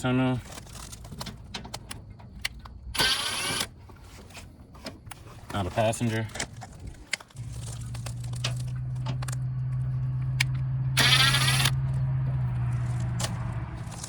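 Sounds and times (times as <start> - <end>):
small electric motor humming: 3.0 - 3.7, 7.4 - 14.0.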